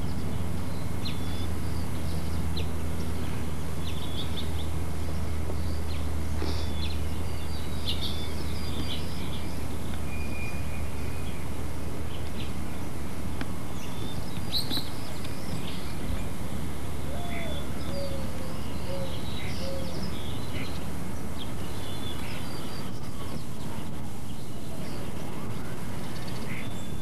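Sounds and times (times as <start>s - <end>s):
low hum: 0.0s - 27.0s
small birds chirping: 0.0s - 27.0s.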